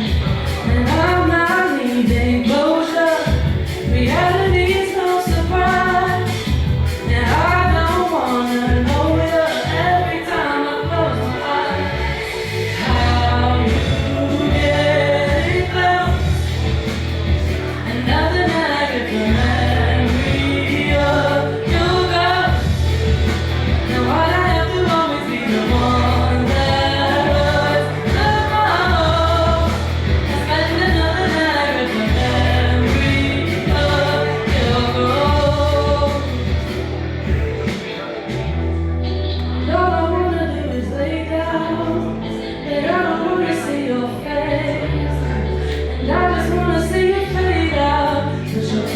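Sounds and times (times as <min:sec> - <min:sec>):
person singing: 0:00.0 - 0:38.5, 0:39.1 - 0:48.9
music with low bass line: 0:00.0 - 0:48.9.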